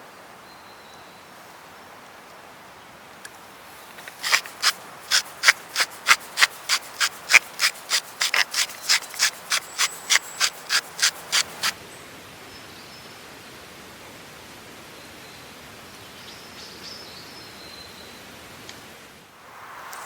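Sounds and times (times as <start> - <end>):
rapid hand rubbing strokes: 4.0 - 11.8.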